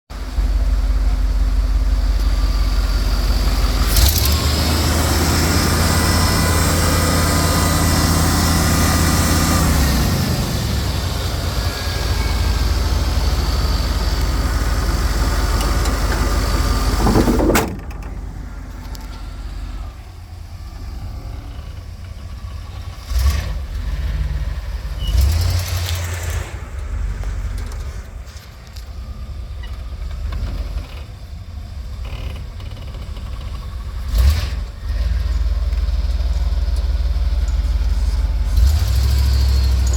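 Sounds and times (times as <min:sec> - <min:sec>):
low rumble: 0:00.1 - 0:22.9, 0:24.4 - 0:31.0
truck engine revving: 0:00.1 - 0:31.0, 0:31.8 - 0:39.9
knocks: 0:16.9 - 0:18.4.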